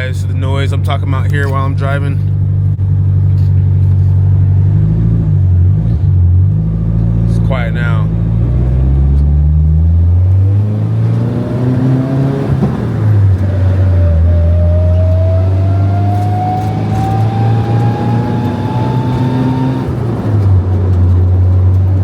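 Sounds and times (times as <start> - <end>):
car engine accelerating: 0.0 - 22.0
transmission whining: 6.3 - 21.2.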